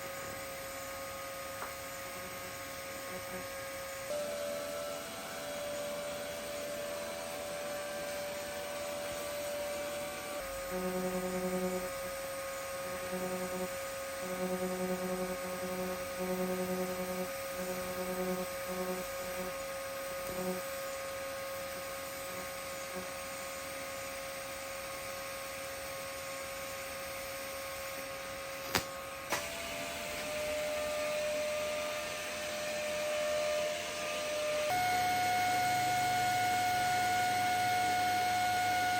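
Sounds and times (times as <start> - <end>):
lower hum cutting in and out: 0.0 - 23.1
welding electrical hum: 0.0 - 38.9.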